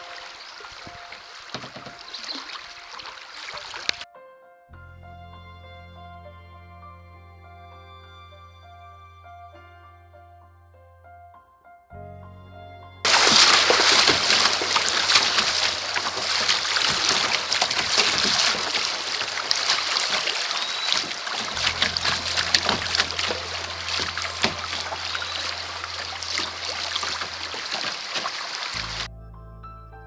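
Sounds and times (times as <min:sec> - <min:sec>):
creek water rushing: 0:00.0 - 0:04.0, 0:13.1 - 0:29.1
water splashing around kayak: 0:00.0 - 0:04.0, 0:13.1 - 0:29.1.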